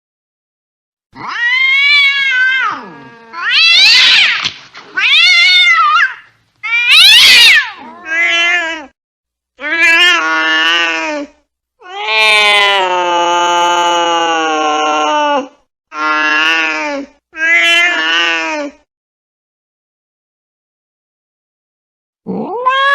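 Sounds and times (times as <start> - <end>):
cat yowling: 1.2 - 9.0, 11.8 - 16.7, 22.4 - 22.9.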